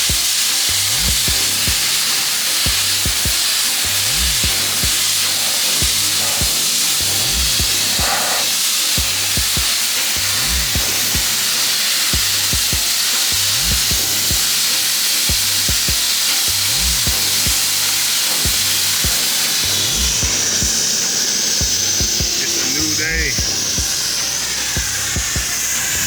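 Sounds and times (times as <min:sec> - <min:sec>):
abrasive blaster hissing: 0:00.0 - 0:26.0
hip-hop beat with deep bass: 0:00.0 - 0:26.0.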